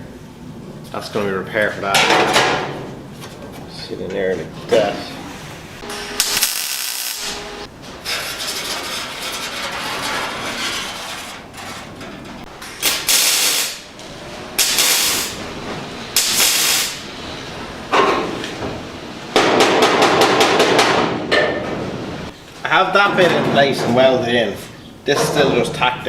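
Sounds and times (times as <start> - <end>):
hissing welding bursts: 5.9 - 7.6, 12.8 - 14.0, 14.6 - 15.4, 16.1 - 17.1.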